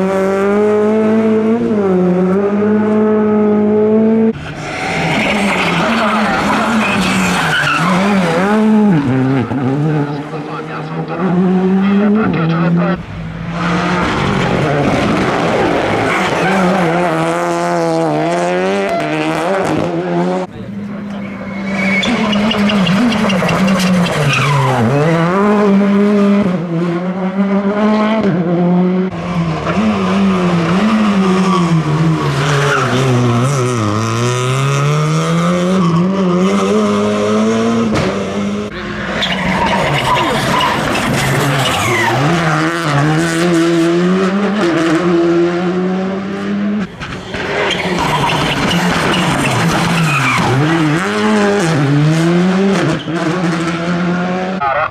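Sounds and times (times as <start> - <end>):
rally car engine at high revs: 0.0 - 54.9
tyre squeal: 4.4 - 8.7, 18.3 - 19.5, 20.5 - 25.1, 38.8 - 42.5, 47.0 - 51.3.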